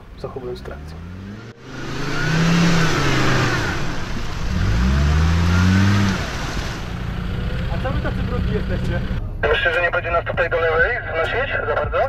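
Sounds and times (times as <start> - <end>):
engine revving: 0.4 - 9.2
loud rushing noise: 1.1 - 7.6.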